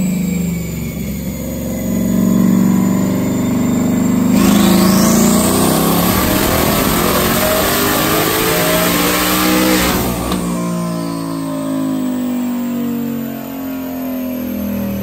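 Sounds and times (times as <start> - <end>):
car engine revving on dyno: 0.0 - 15.0
rising whine: 0.5 - 15.0.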